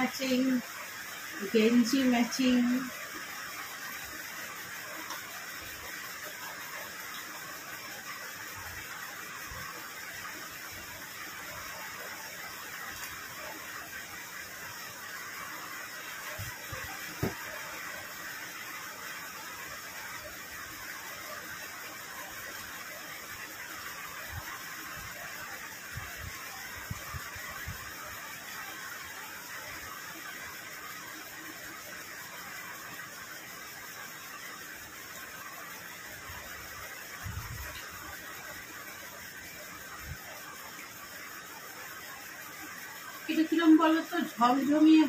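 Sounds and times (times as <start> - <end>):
rain falling: 0.0 - 45.0.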